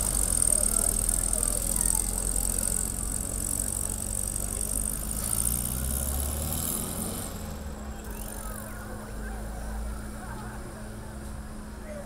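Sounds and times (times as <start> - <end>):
vehicle engine idling: 0.0 - 6.3.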